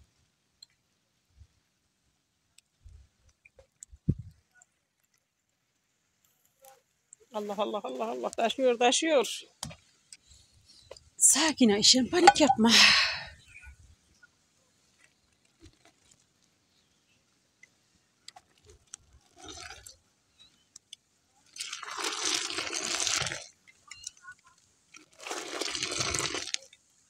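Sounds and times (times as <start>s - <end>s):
liquid splashing and hissing: 21.6s - 23.6s, 25.0s - 26.7s.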